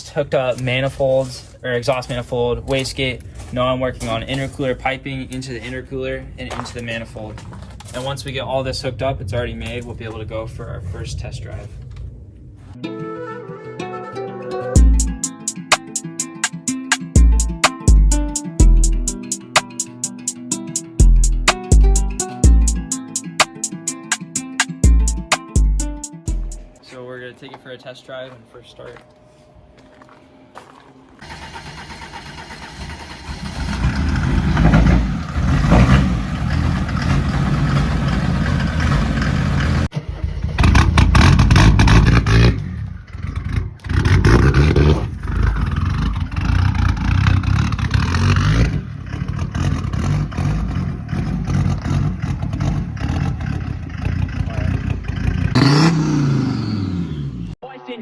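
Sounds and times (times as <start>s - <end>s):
diesel engine starting and revving: 31.1s - 57.6s.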